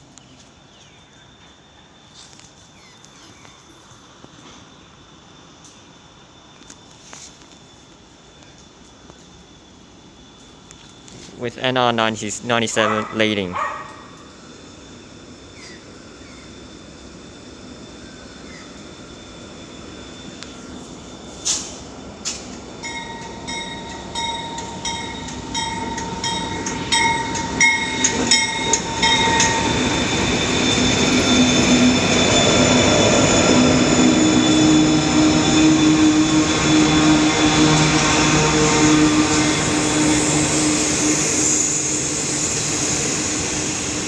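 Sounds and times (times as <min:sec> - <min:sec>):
freight train passing: 0:00.0 - 0:44.0
high steady squeal: 0:00.0 - 0:44.0
locomotive engines droning: 0:00.0 - 0:44.0
train wheel clicks: 0:21.4 - 0:31.0.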